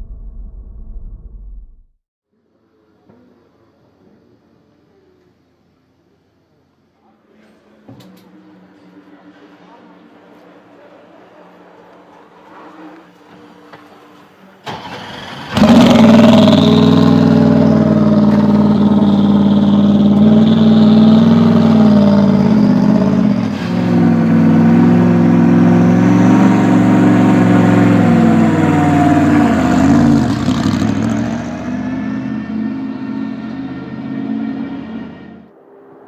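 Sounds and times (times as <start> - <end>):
car engine starting: 14.6 - 35.5
car engine high idle: 14.9 - 23.5.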